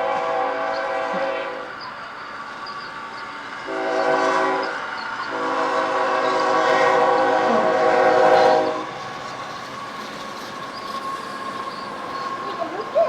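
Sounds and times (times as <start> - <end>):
train horn blasts: 0.0 - 1.8, 3.6 - 9.1.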